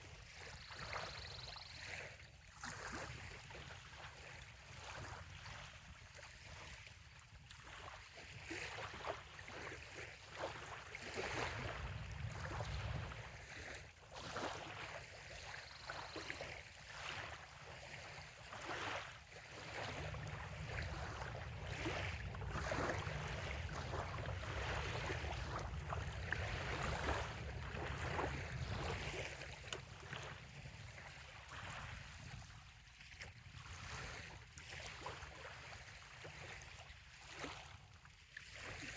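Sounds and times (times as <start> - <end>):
small waves lapping on shore: 0.0 - 38.9
low rumble: 20.0 - 29.0.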